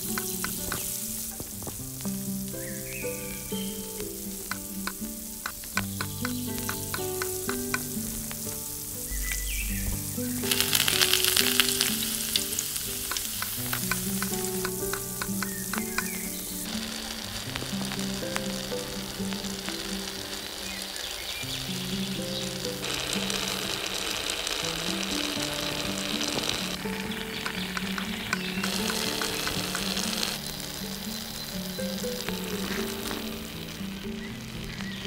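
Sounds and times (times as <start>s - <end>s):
food sizzling in hot oil: 0.0s - 35.0s
soft background music: 0.0s - 35.0s.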